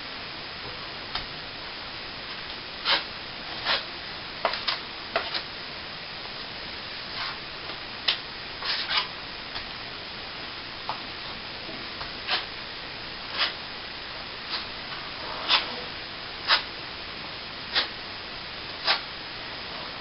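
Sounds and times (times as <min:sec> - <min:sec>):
steady hiss: 0:00.0 - 0:20.0
trowel scraping plaster: 0:02.8 - 0:03.8, 0:08.6 - 0:09.1, 0:12.2 - 0:12.5, 0:13.3 - 0:13.6, 0:14.5 - 0:16.7, 0:17.7 - 0:17.9, 0:18.8 - 0:19.0.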